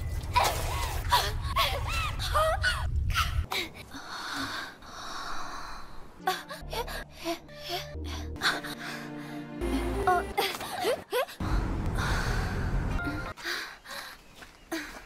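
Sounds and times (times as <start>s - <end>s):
person gasping and crying: 6.2s - 12.8s
low rumble: 11.4s - 13.1s.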